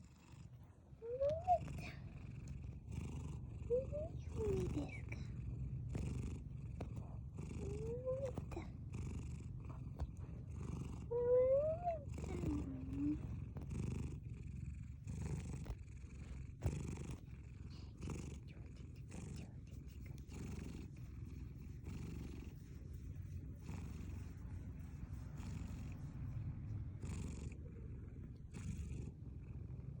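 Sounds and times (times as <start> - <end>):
cat purring: 0.0 - 30.0
cat gliding voice sounds: 0.9 - 2.1, 3.6 - 5.5, 6.9 - 8.9, 9.7 - 13.4.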